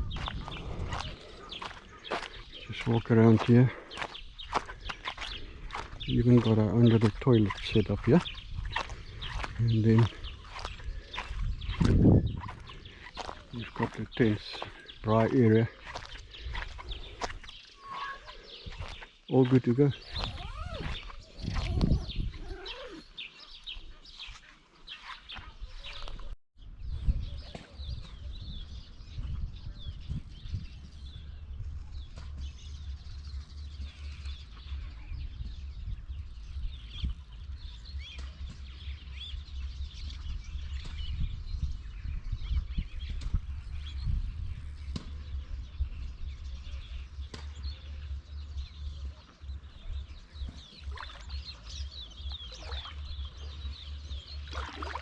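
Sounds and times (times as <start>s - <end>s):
wind rumble on microphone: 0.0s - 3.0s, 4.2s - 14.2s, 20.0s - 23.6s, 25.6s - 55.0s
small birds chirping: 0.0s - 55.0s.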